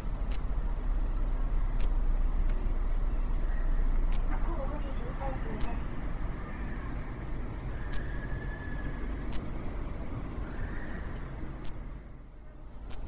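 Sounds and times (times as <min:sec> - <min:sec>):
road traffic rumble: 0:00.0 - 0:13.0
sharp clicks: 0:00.2 - 0:00.5, 0:01.8 - 0:02.6, 0:04.1 - 0:04.3, 0:05.6 - 0:05.8, 0:07.8 - 0:08.2, 0:09.2 - 0:09.6, 0:11.6 - 0:11.9.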